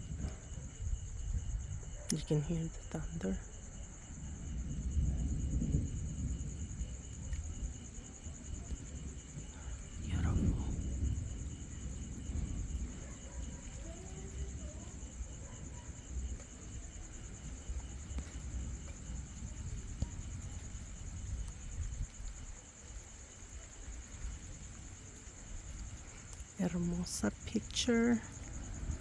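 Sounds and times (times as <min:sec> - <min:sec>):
low rumbling background: 0:00.0 - 0:12.9
insect pulsing: 0:00.0 - 0:29.0.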